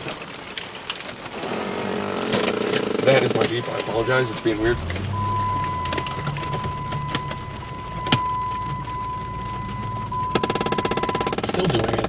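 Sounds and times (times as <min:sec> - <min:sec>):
engine idling: 0:01.8 - 0:12.0
clicks: 0:02.2 - 0:12.0
rapid even pulsing: 0:03.0 - 0:11.4
high electronic warning tone: 0:03.4 - 0:11.5.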